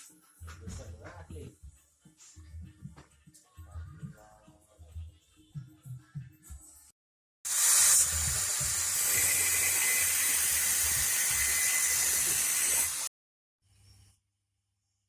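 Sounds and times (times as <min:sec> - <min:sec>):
loud steady hiss: 0:07.5 - 0:13.1.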